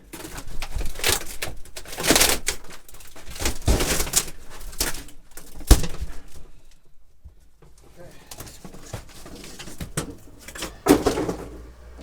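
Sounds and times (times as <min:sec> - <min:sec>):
plywood panel cracking and tearing: 0:00.1 - 0:06.4.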